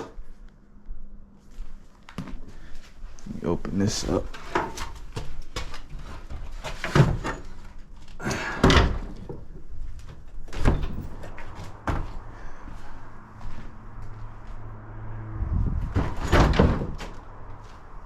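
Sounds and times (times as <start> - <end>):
loud knocks and bangs: 15.7 - 17.3.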